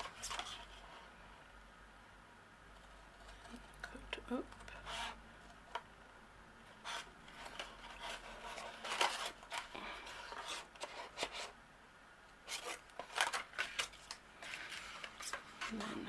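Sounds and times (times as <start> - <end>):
card rustling: 0.0 - 1.0, 6.8 - 11.6, 12.4 - 16.0
scissors cutting cardstock: 2.8 - 5.8.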